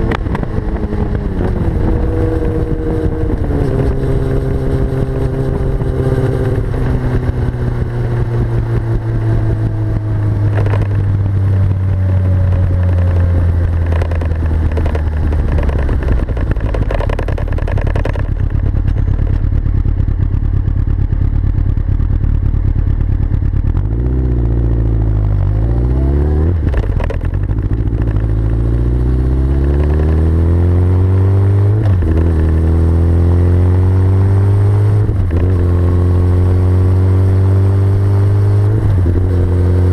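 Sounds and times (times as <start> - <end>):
motorcycle engine revving: 0.0 - 39.9
exhaust backfire pops: 6.5 - 20.8, 26.6 - 28.5, 31.8 - 32.6.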